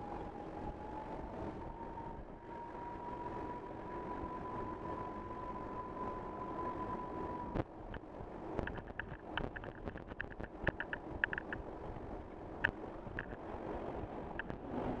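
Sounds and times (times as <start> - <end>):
road and wind noise in car: 0.0 - 15.0
sharp clicks: 8.6 - 11.6.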